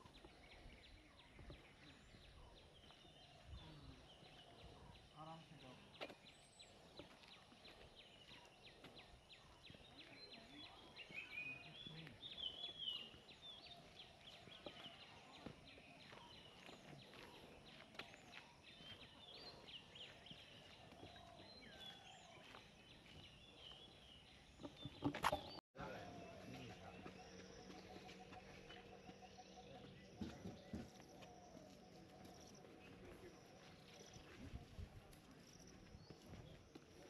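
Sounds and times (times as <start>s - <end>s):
birds chirping and warbling: 0.0s - 37.0s.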